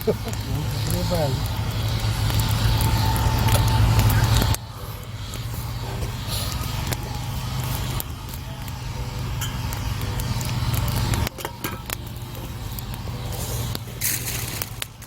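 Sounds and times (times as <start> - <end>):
engine running with low hum: 0.0 - 15.0.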